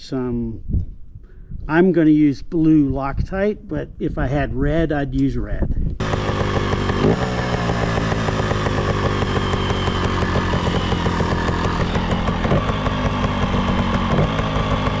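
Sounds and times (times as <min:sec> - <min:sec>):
motorcycle engine putter: 0:06.0 - 0:15.0.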